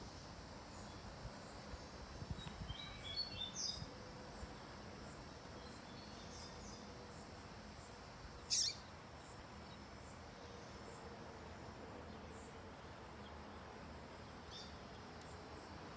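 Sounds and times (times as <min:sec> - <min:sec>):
bird chirping: 0:08.4 - 0:08.9.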